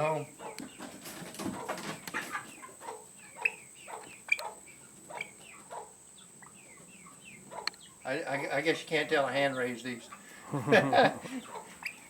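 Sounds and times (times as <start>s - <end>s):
chickens and pheasants calling: 0.0s - 12.0s.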